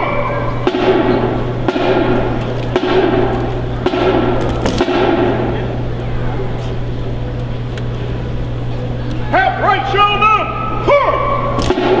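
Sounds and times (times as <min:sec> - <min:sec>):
low hum: 0:00.0 - 0:12.0
body percussion strikes: 0:00.6 - 0:05.8, 0:11.5 - 0:12.0.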